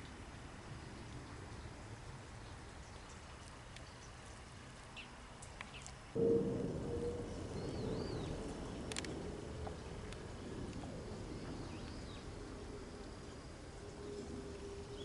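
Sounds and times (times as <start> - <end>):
faint bird chirps: 5.7 - 8.8.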